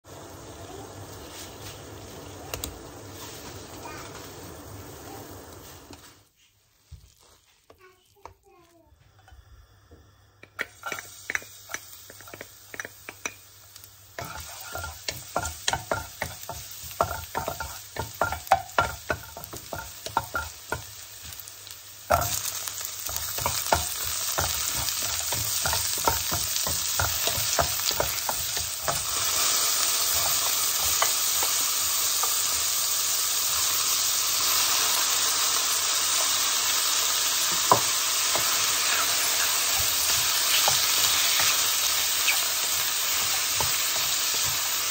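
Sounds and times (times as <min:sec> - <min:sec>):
oil sizzling in a wok: 0:00.0 - 0:44.9
wooden spatula stirring: 0:06.0 - 0:08.7, 0:14.2 - 0:21.4, 0:22.1 - 0:32.4
clicks and scrapes in a wok: 0:10.4 - 0:21.4, 0:22.0 - 0:32.6, 0:37.5 - 0:44.9.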